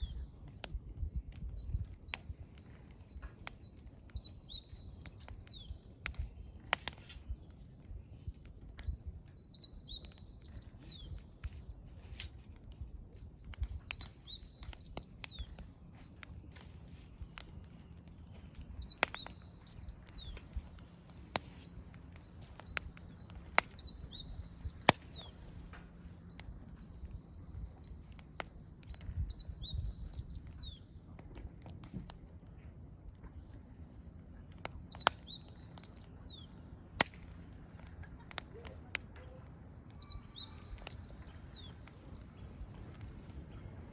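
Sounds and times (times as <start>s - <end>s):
campfire crackling and popping: 0.0s - 43.9s
songbird twittering: 1.6s - 5.9s, 8.8s - 11.2s, 13.9s - 30.9s, 34.9s - 36.6s, 39.2s - 42.2s.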